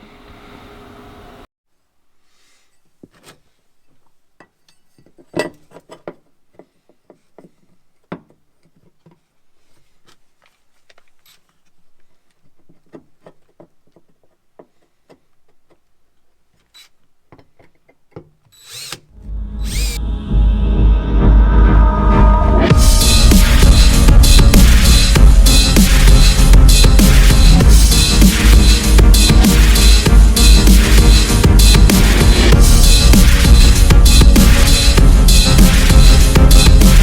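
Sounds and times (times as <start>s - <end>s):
music: 19.2s - 37.0s.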